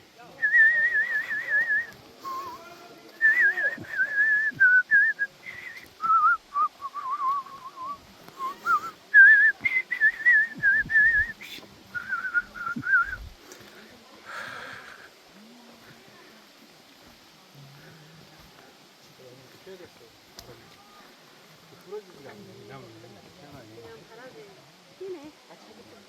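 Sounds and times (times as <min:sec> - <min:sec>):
person whistling a tune: 0:00.4 - 0:02.5, 0:03.2 - 0:11.3, 0:11.9 - 0:13.2.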